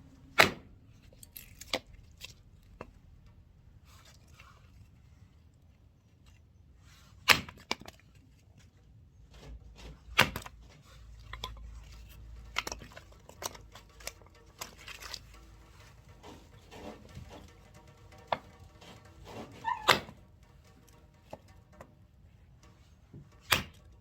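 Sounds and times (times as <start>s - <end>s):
firewood splitting knocks and cracks: 7.2s - 8.1s.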